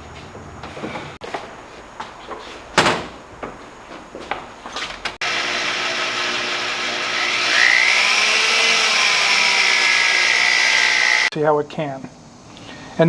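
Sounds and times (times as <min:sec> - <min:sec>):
small electric motor whine: 0:05.2 - 0:11.3.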